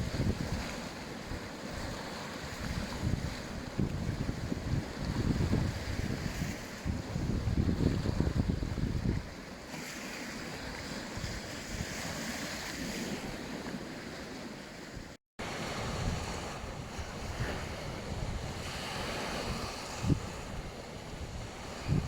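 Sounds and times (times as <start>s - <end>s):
wind buffeting microphone: 0.0s - 9.5s, 14.8s - 22.0s
sea waves washing onto beach: 0.0s - 22.0s.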